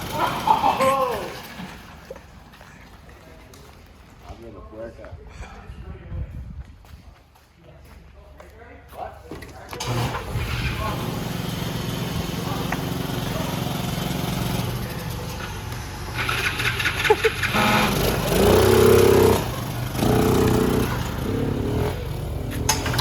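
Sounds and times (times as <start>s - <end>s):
small gasoline engine running: 0.0s - 1.0s, 9.8s - 23.0s
louder pitched sounds: 16.0s - 23.0s.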